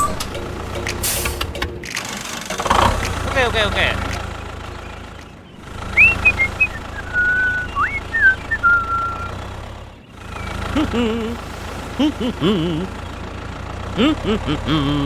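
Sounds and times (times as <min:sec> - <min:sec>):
small engine humming: 0:00.0 - 0:15.0
whistled notes: 0:05.8 - 0:09.4.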